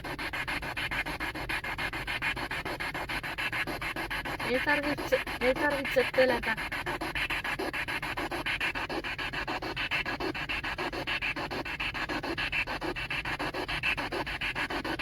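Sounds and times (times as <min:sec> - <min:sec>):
choppy radio static: 0:04.5 - 0:06.6.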